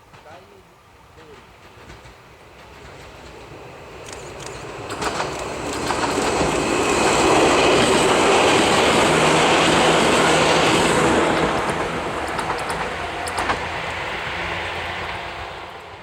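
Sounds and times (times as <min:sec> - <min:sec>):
electric train passing: 0:00.0 - 0:16.0
wheels clicking over rail joints: 0:04.0 - 0:08.0, 0:11.4 - 0:15.1.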